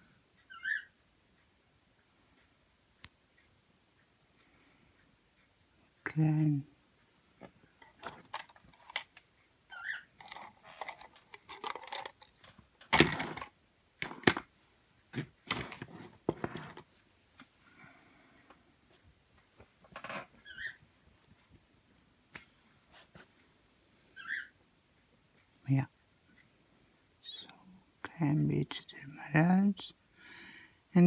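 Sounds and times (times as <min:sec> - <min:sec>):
play dough and plastic pots handled: 0:07.4 - 0:09.2, 0:09.8 - 0:17.5.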